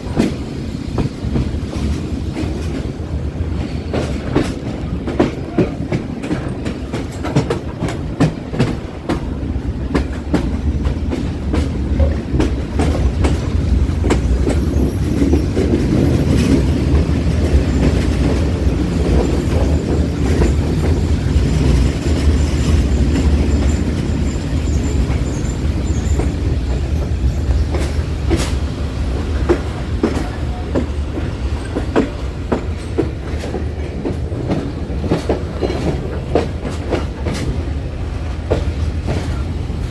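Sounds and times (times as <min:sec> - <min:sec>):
train low rumble: 0:00.0 - 0:39.9
train wheels clacking: 0:00.0 - 0:39.9
faint high wheel squeal: 0:23.6 - 0:26.4.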